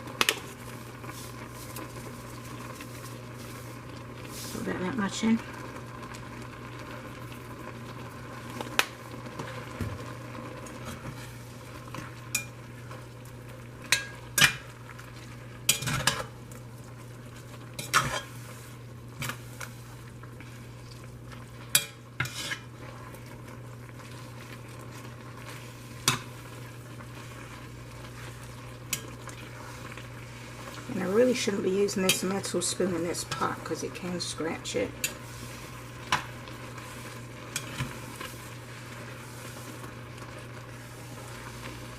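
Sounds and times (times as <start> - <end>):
liquid simmering: 0.0 - 41.9
metal spoon stirring in a pot: 12.0 - 12.6, 13.9 - 14.7, 15.6 - 16.4, 17.7 - 18.5, 21.6 - 23.2, 24.1 - 33.8, 34.9 - 39.2.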